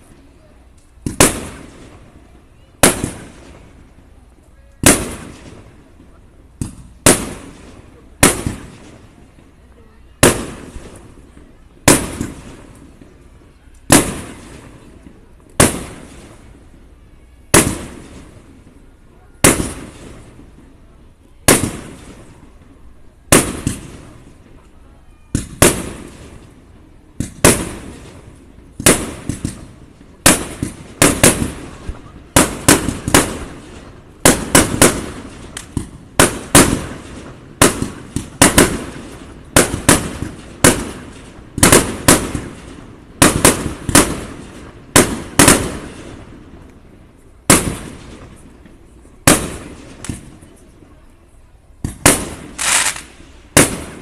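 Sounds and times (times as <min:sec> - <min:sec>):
firework shells bursting: 0:28.8 - 0:46.4, 0:51.8 - 0:54.0.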